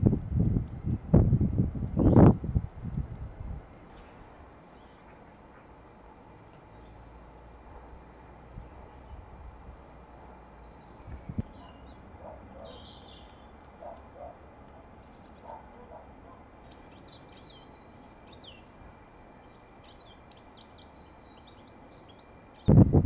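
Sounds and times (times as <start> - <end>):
small birds chirping: 10.6 - 22.7.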